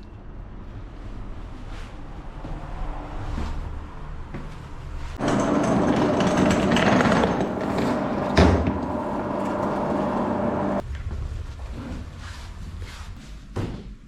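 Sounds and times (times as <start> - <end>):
machine motor humming and rattling: 5.2 - 10.8.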